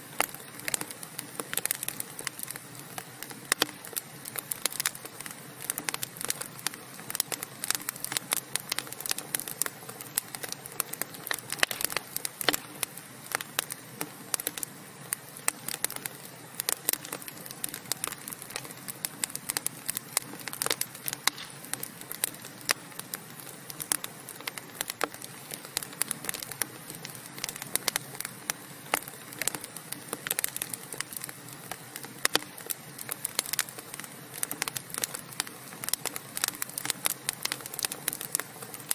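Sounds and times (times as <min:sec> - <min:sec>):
soft hiss of fire: 0:00.0 - 0:38.9
wood fire crackling and popping: 0:00.0 - 0:38.9.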